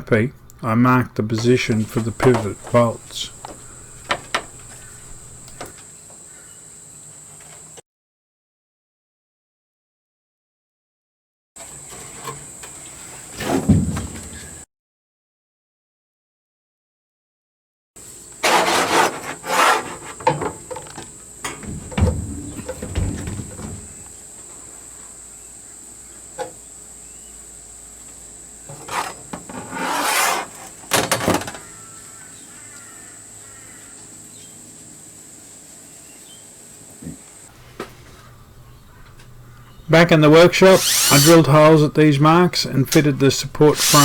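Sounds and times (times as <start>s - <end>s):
camp table rubbing and knocking: 1.4s - 5.7s, 11.6s - 14.6s, 18.4s - 24.6s, 28.6s - 31.7s, 40.2s - 41.9s, 42.9s - 44.0s.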